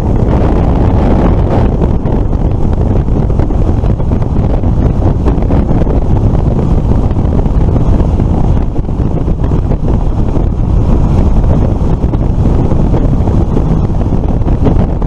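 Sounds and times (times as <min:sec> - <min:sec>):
road noise rumble: 0:00.0 - 0:15.0
wind buffeting microphone: 0:00.0 - 0:15.0.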